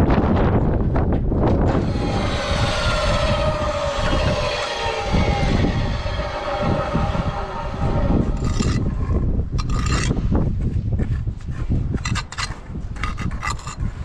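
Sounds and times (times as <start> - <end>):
low rumble: 1.3 - 11.0
passing engine drone: 1.7 - 9.5.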